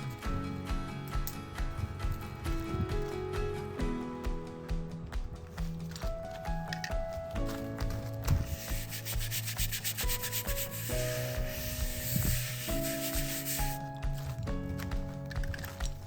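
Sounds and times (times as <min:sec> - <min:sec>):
brush scrubbing concrete: 0:08.3 - 0:14.4.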